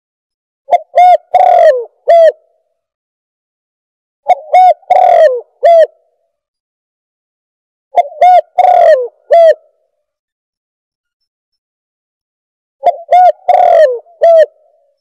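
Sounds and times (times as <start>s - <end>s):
dove cooing: 0.7s - 2.4s, 4.3s - 6.0s, 8.0s - 9.7s, 12.8s - 14.8s.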